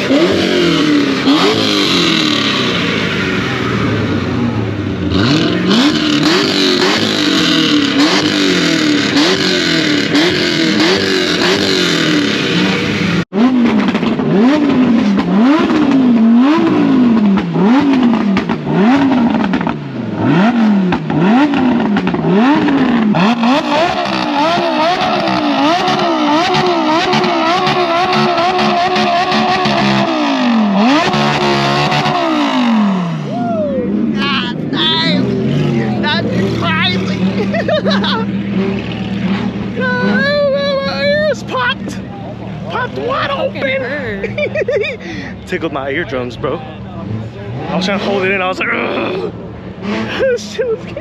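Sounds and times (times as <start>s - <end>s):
car engine revving: 0.0s - 51.0s.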